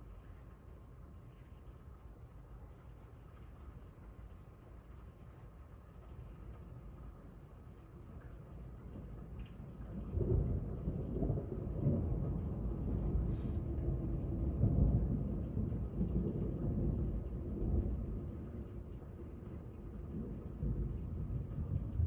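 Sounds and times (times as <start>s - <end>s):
thunder rumbling: 10.0s - 22.0s.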